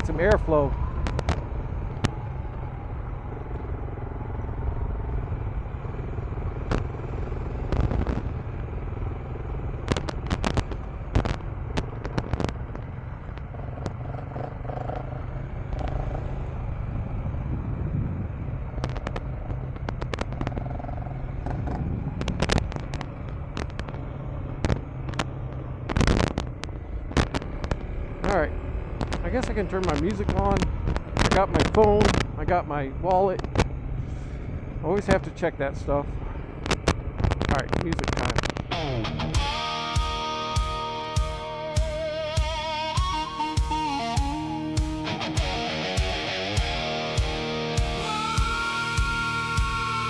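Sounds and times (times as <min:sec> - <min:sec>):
motorcycle engine running: 0:00.8 - 0:32.4, 0:36.1 - 0:50.0
sharp pops and knocks: 0:07.7 - 0:08.3, 0:09.8 - 0:14.0, 0:18.8 - 0:20.7, 0:22.2 - 0:27.9, 0:33.4 - 0:33.8, 0:36.6 - 0:38.8
wind rush on microphone: 0:16.6 - 0:20.7, 0:21.4 - 0:25.2.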